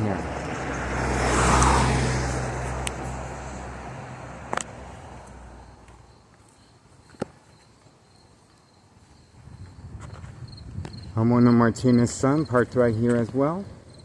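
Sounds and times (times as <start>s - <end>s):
passing car engine and tyres: 0.0s - 6.4s
faint crickets chirping: 5.4s - 14.0s.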